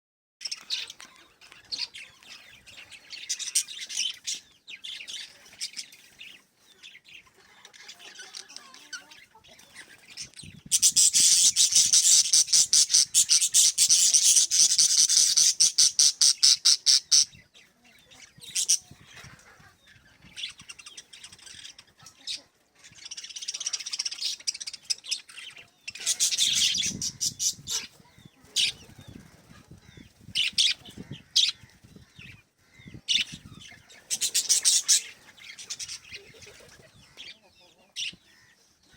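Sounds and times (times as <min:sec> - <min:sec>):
small parrots chirping: 0:10.1 - 0:17.4, 0:23.0 - 0:29.0, 0:32.9 - 0:38.5.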